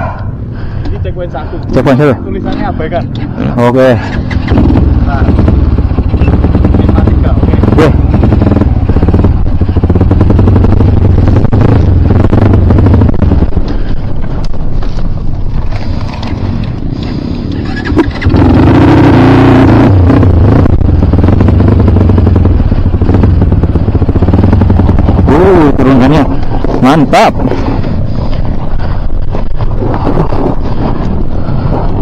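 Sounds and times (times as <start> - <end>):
dirt bike engine revving: 3.4 - 14.0, 16.9 - 28.2.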